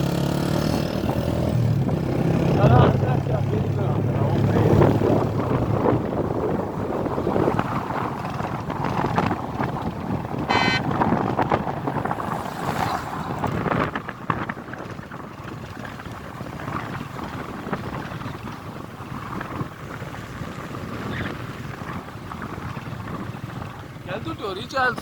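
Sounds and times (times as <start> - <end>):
wind buffeting microphone: 0.0 - 25.0
brief high-pitched tone: 10.5 - 10.8.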